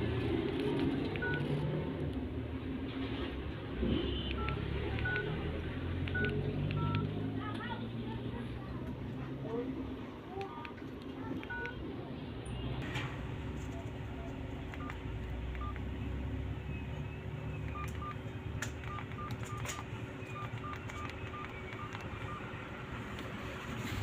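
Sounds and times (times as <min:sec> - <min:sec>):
keypad clicks: 0:00.5 - 0:01.5, 0:04.3 - 0:05.3, 0:06.0 - 0:07.2, 0:10.4 - 0:11.8, 0:14.7 - 0:15.9, 0:17.6 - 0:22.5
phone keypad beeps: 0:01.2 - 0:01.5, 0:04.3 - 0:05.4, 0:06.0 - 0:07.2, 0:11.4 - 0:11.8, 0:14.8 - 0:15.9, 0:17.1 - 0:18.2, 0:18.8 - 0:22.6.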